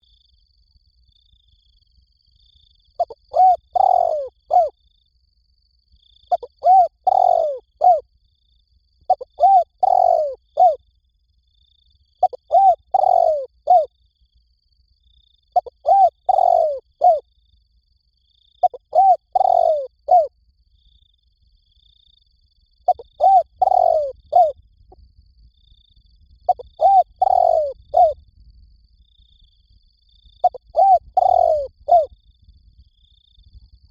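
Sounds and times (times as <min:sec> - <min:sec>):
dove cooing: 0:03.0 - 0:04.7, 0:06.3 - 0:08.0, 0:09.1 - 0:10.8, 0:12.2 - 0:13.9, 0:15.6 - 0:17.2, 0:18.6 - 0:20.3, 0:22.9 - 0:24.6, 0:26.5 - 0:28.2, 0:30.4 - 0:32.1.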